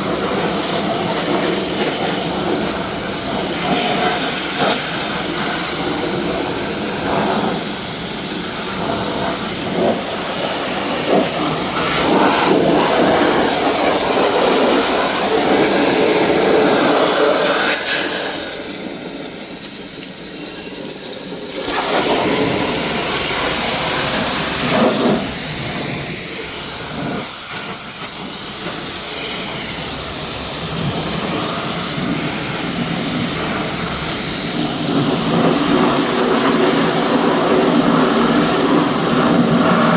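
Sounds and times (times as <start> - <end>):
high-pressure water jet hissing: 0.0 - 39.9.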